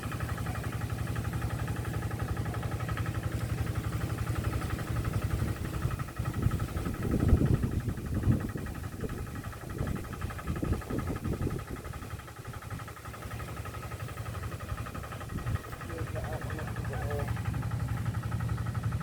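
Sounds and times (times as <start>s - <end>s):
wind buffeting microphone: 5.4s - 12.8s, 15.2s - 16.2s.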